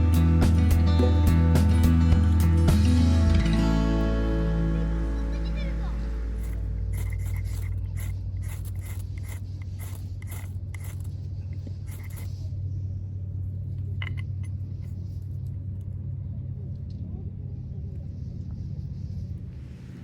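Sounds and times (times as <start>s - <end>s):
low motor-like drone: 0.9s - 11.1s
sharp scraping strikes: 6.3s - 12.4s.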